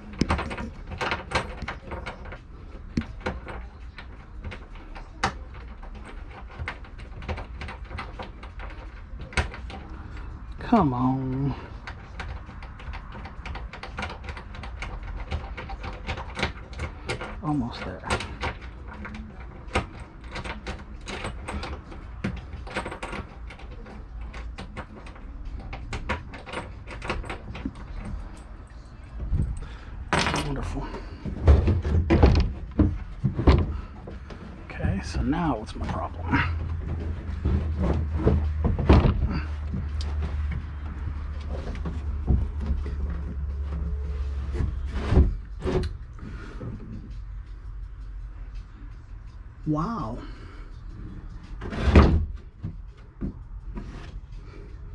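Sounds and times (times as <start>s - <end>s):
metal parts rattling: 0.0s - 4.9s, 11.4s - 38.2s
knocks and scraping of tools: 0.0s - 10.6s, 11.2s - 49.4s, 50.4s - 54.9s
hand tool clicks and knocks: 29.4s - 30.8s.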